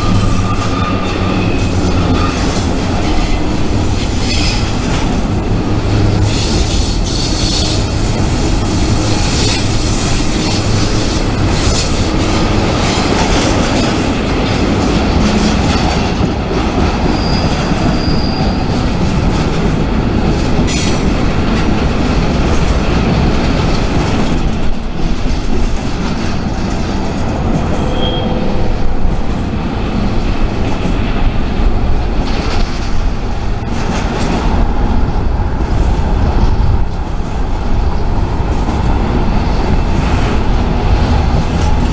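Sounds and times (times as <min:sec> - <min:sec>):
high wheel squeals: 0:00.0 - 0:14.1, 0:16.8 - 0:19.5, 0:27.7 - 0:28.7
freight train clattering past: 0:00.0 - 0:41.9.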